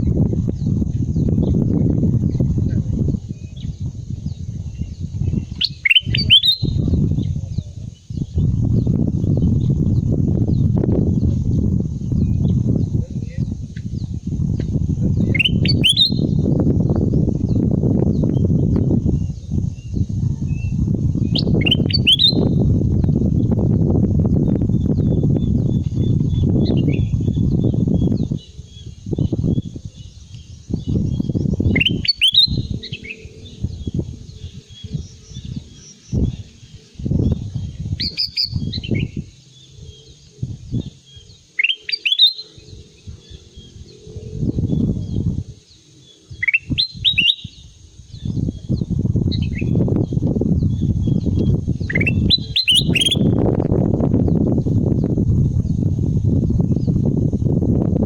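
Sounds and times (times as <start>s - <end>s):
bird twittering: 3.4s - 9.0s, 15.2s - 16.4s, 21.3s - 22.6s, 24.8s - 53.4s
bird whistling rising notes: 4.8s - 6.8s, 15.2s - 16.4s, 20.5s - 22.6s, 26.6s - 37.4s, 38.0s - 45.2s, 46.0s - 48.4s, 50.7s - 53.4s
low rumbling noise: 22.4s - 41.4s, 42.6s - 46.4s.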